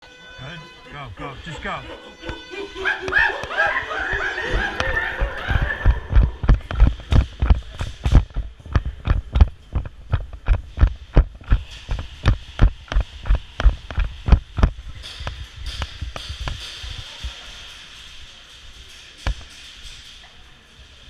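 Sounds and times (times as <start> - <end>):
running footsteps thudding: 3.1 - 15.4.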